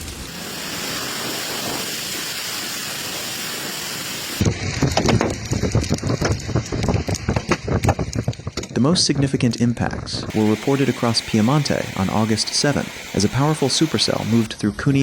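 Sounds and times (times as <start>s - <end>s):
torrential rain hiss: 0.0s - 7.8s, 10.3s - 14.5s
irregular knocks and clatter: 4.5s - 9.6s.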